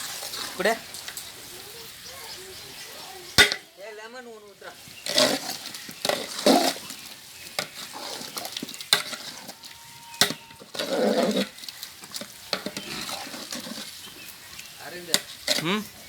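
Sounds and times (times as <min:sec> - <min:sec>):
ladle scraping a cooking pot: 0:00.0 - 0:01.3, 0:04.7 - 0:16.0.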